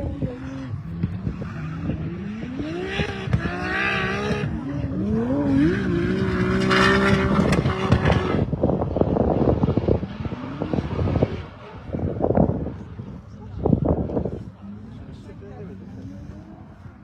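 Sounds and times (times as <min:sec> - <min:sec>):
car engine revving hard: 0:00.8 - 0:08.6.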